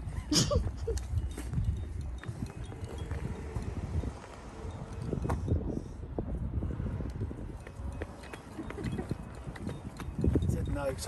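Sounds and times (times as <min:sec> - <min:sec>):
wind rumble on microphone: 0:00.0 - 0:11.0
footsteps knocking and crunching: 0:00.6 - 0:04.4.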